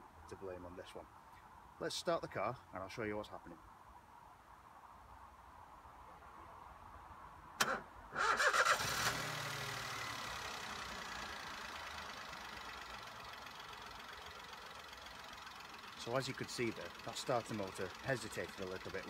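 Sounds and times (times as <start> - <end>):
car engine idling: 7.6 - 19.0.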